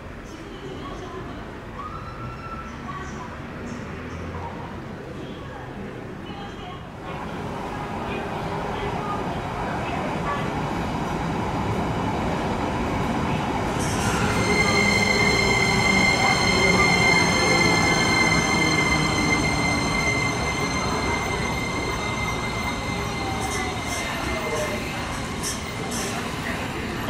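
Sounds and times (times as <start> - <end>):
electric train rumbling past: 7.0 - 27.0
train brakes squealing: 13.8 - 27.0.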